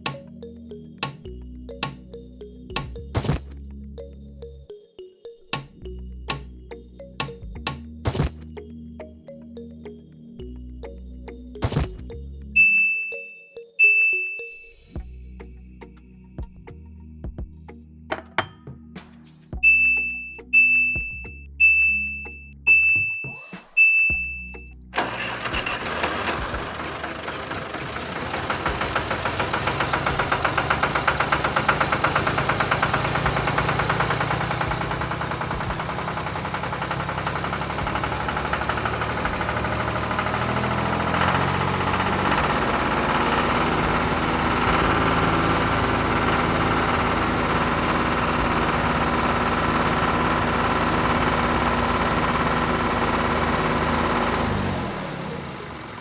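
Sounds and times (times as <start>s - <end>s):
tractor engine running: 19.6s - 23.2s, 23.8s - 56.0s.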